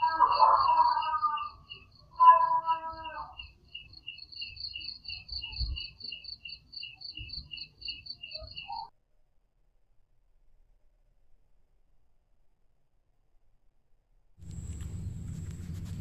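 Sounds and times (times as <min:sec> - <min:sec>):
low rumble: 0:14.4 - 0:16.0.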